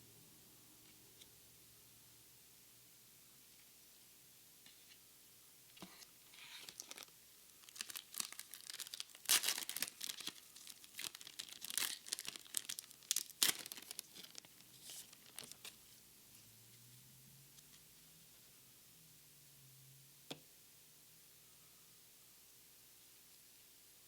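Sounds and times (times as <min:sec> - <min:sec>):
wrapper tearing and crinkling: 0:06.6 - 0:15.7.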